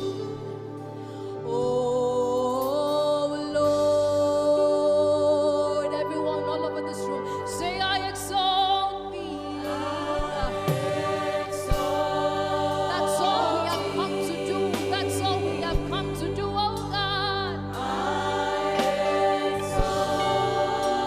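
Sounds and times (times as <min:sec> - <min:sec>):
person singing with vibrato: 0:00.0 - 0:21.0
keyboard chords: 0:03.8 - 0:21.0
voices singing: 0:09.2 - 0:21.0.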